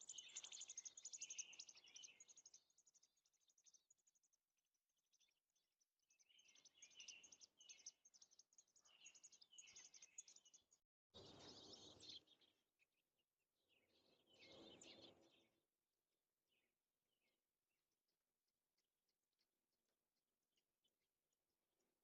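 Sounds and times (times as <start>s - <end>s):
robins chirping faintly: 0.0s - 15.7s.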